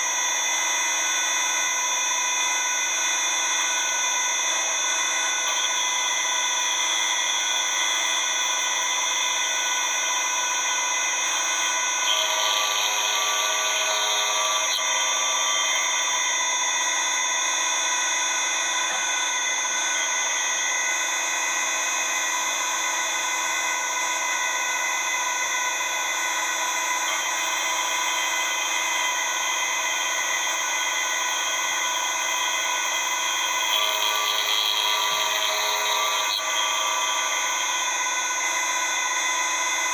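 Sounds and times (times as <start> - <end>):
lathe machine whine: 0.0 - 39.9
brighter harsh machine sound: 8.8 - 16.8, 31.4 - 39.9.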